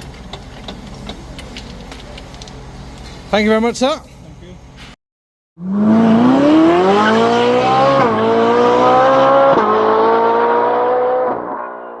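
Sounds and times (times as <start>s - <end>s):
car engine accelerating hard: 5.6s - 12.0s.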